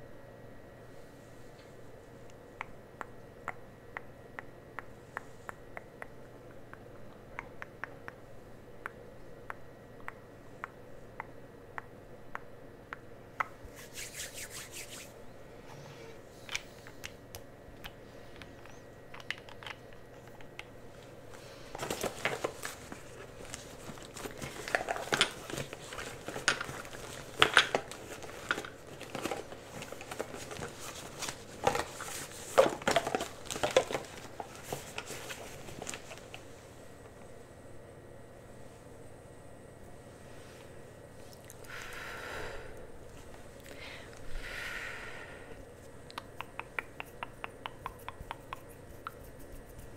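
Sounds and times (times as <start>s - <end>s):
crinkling and rustling: 21.3s - 36.5s.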